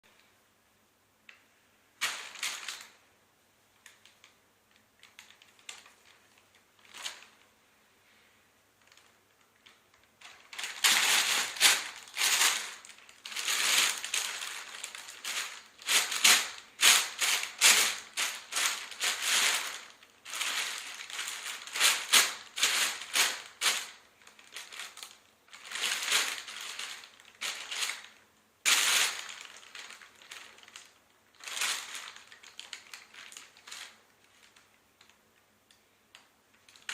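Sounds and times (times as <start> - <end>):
bag rustling and crinkling: 8.8 - 34.7.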